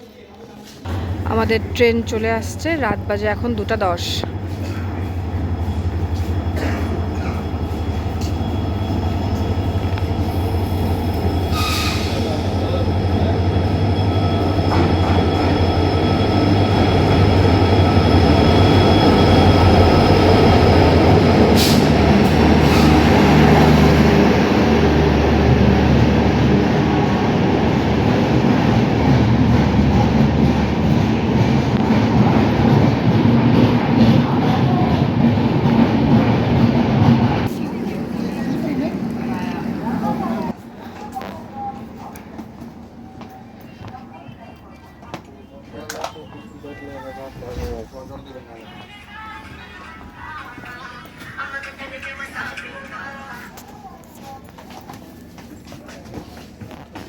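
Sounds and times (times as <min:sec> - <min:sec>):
train rumbling: 0:00.8 - 0:57.0
wheels squealing: 0:04.4 - 0:24.5.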